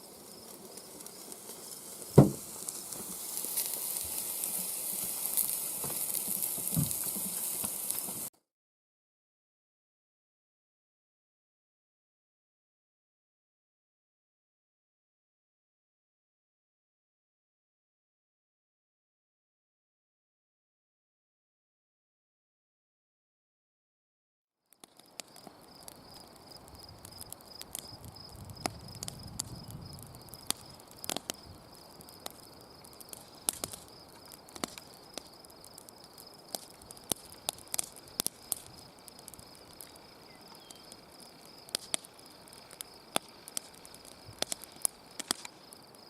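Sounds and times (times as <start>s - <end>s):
insects trilling: 0.0s - 8.3s, 24.8s - 46.0s
sharp clicks and crackles: 0.3s - 8.3s, 24.7s - 46.0s.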